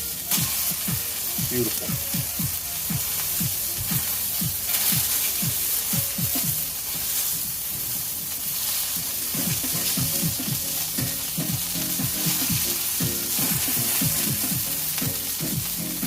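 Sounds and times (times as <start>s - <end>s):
background music with low beat: 0.0s - 16.0s
patties sizzling in oil on griddle: 0.0s - 16.0s.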